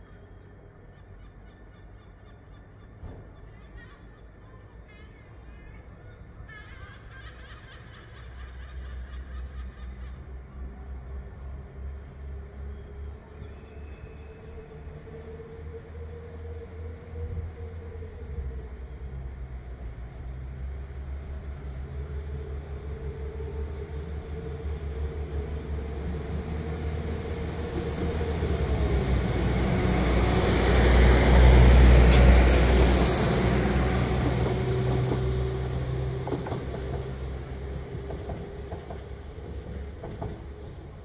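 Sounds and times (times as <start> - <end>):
train passing: 0.0 - 41.0.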